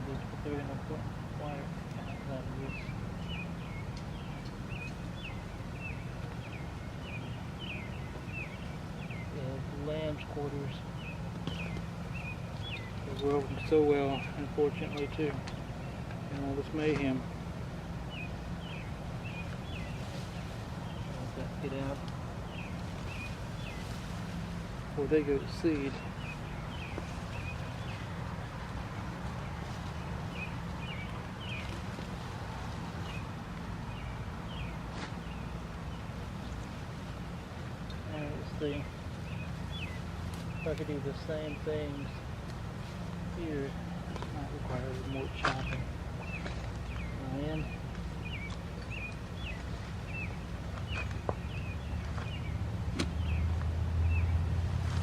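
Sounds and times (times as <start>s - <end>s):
bird chirping: 0.0s - 17.3s, 18.0s - 54.4s.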